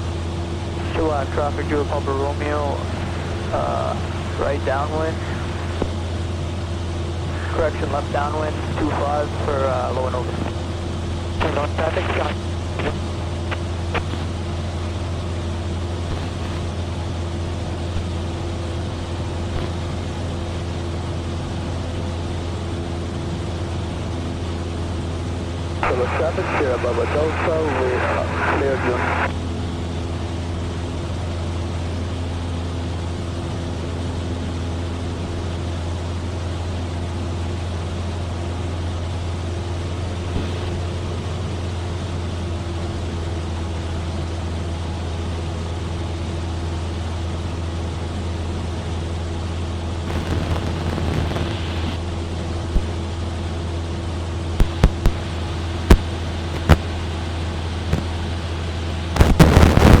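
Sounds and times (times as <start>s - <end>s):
airplane engine droning: 0.4s - 16.0s, 25.8s - 29.4s
sharp clicks: 54.6s - 55.2s, 55.9s - 56.8s.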